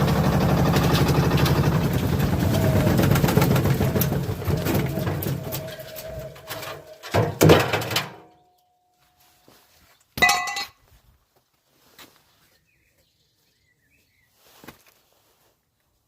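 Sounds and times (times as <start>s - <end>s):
washing machine banging and clattering: 0.0s - 8.3s.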